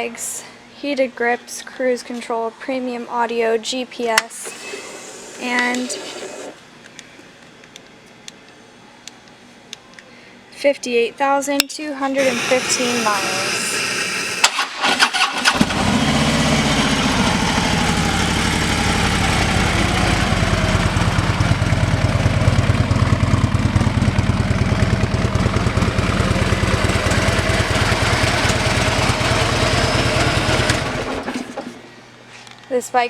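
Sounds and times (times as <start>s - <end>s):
motorcycle engine starting and idling: 12.2s - 31.9s.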